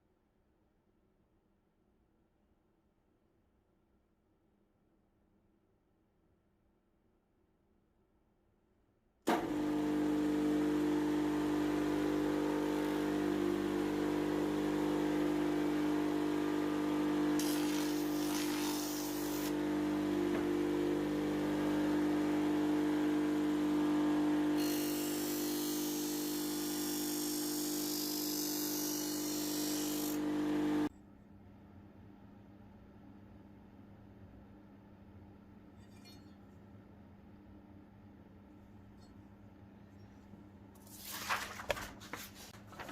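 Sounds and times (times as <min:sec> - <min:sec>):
grinder motor humming: 0:09.3 - 0:30.9.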